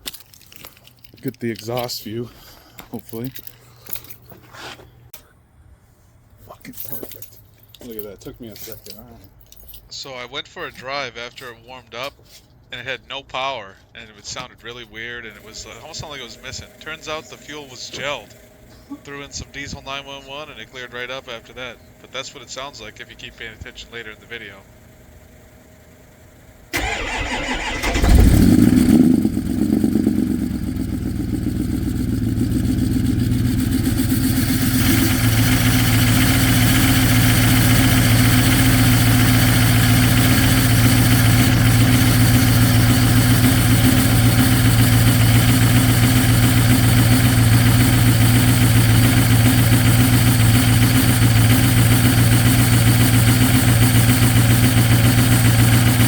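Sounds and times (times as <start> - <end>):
diesel engine cranking and starting: 15.3 - 56.0
diesel engine high idle: 15.3 - 56.0.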